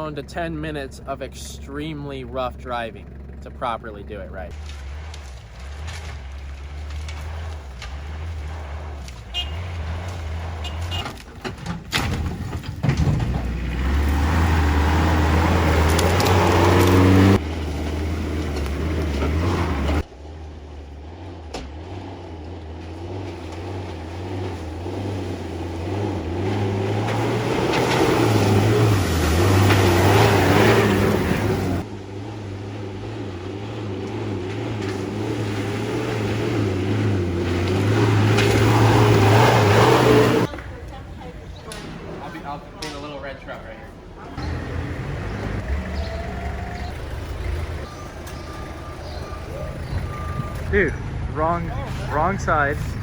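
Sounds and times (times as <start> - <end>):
truck engine revving hard: 0.0 - 11.6, 12.2 - 40.6, 44.0 - 53.0
sharp knocks and clatters: 4.5 - 14.2.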